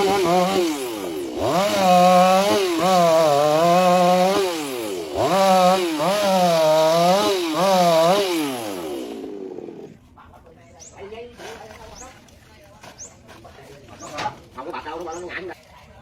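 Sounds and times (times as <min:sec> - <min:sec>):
chainsaw revving: 0:00.0 - 0:10.0.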